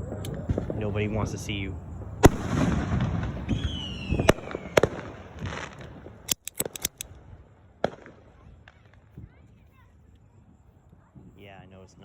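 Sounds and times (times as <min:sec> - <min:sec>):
firework bangs: 0:00.0 - 0:06.3, 0:07.1 - 0:10.6
distant fireworks rumble: 0:00.0 - 0:12.0
falling firework whistle: 0:02.2 - 0:05.9
firecracker cracks: 0:02.2 - 0:07.2.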